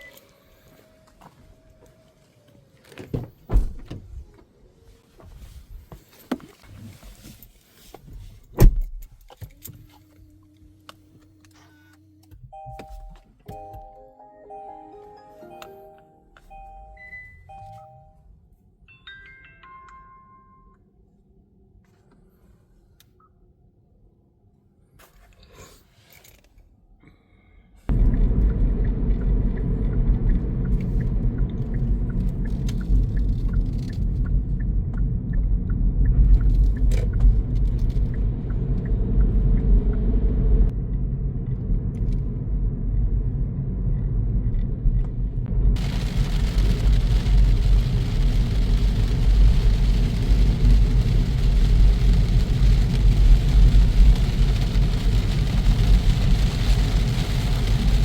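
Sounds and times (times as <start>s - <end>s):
road and wind noise: 0.0s - 10.0s, 27.9s - 58.0s.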